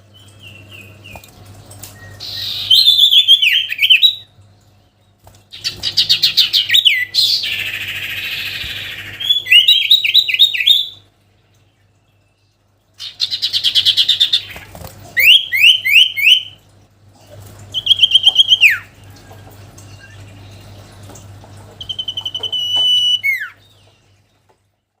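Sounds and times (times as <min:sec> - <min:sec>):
low electrical hum: 0:00.0 - 0:25.0
songbird whistles and trills: 0:01.9 - 0:04.3, 0:05.6 - 0:11.0, 0:15.2 - 0:16.6, 0:17.7 - 0:18.9, 0:21.8 - 0:24.1.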